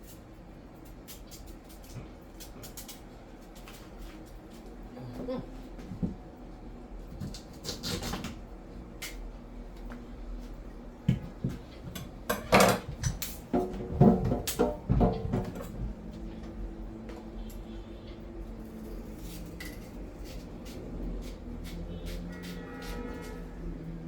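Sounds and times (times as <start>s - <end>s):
pots and utensils clattering: 11.9s - 15.8s.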